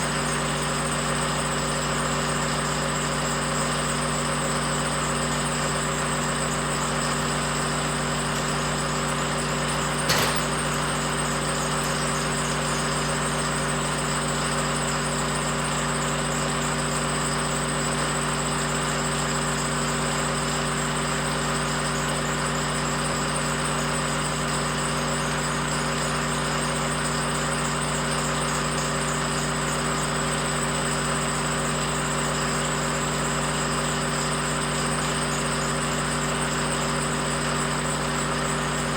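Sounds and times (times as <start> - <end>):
sharp click: 10.1 - 10.8.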